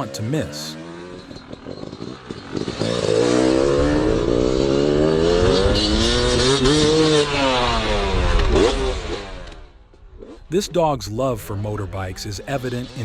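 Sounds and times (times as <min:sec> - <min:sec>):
motorcycle engine running: 0:00.7 - 0:10.5.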